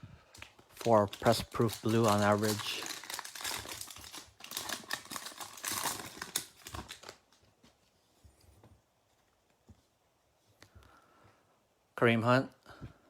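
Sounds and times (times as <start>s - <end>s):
foil wrapper tearing and crinkling: 0.3s - 7.4s.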